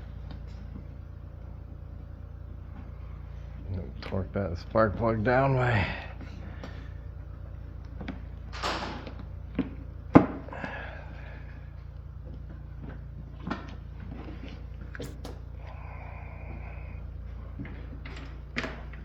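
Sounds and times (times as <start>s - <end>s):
steady low hum: 0.0s - 19.0s
tools clicking and knocking: 15.0s - 15.5s.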